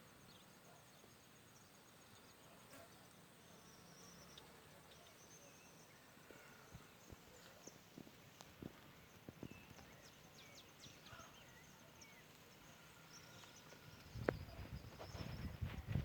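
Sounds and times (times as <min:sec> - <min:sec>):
faint high chirps and clicks: 0:06.3 - 0:15.6.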